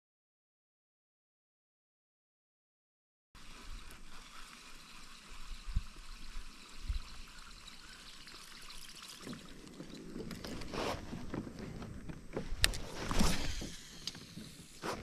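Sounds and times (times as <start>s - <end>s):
water trickling and lapping: 3.4s - 15.0s.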